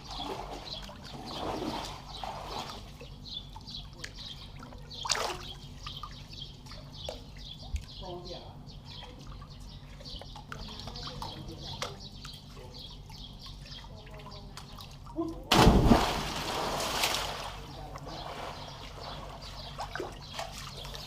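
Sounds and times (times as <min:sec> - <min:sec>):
loud water splash: 0:15.5 - 0:17.6.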